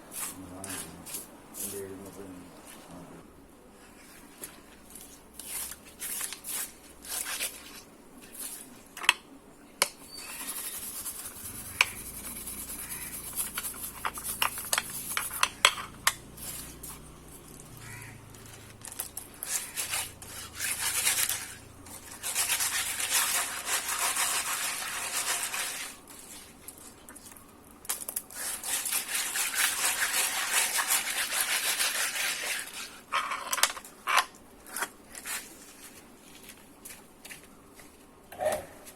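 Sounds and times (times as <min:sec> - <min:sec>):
brush scrubbing hard parts: 0:00.0 - 0:02.9, 0:10.2 - 0:26.9, 0:28.3 - 0:33.4.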